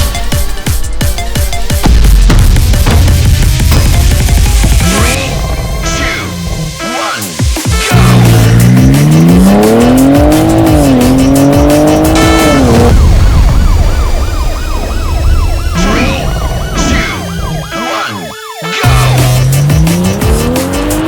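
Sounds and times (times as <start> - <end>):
music with swooping tones: 0.0 - 21.0
car engine accelerating hard: 7.9 - 13.4, 18.8 - 21.0.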